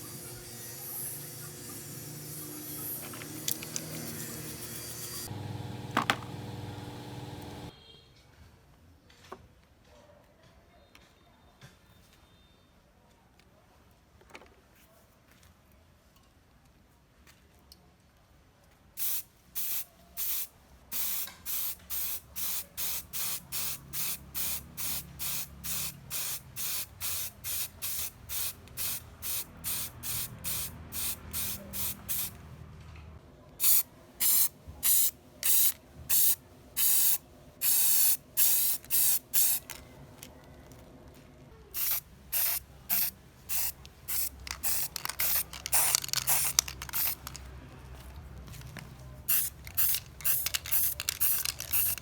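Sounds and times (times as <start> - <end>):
short hissing spray bursts: 0.0 - 5.3, 19.0 - 32.4, 33.6 - 39.7, 41.8 - 47.4, 49.3 - 52.0.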